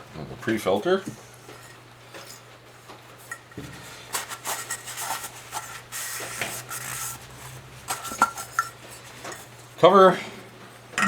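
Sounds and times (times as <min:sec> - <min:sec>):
air filter rubbing and scuffing: 0:01.2 - 0:09.7
scraping: 0:03.6 - 0:09.6.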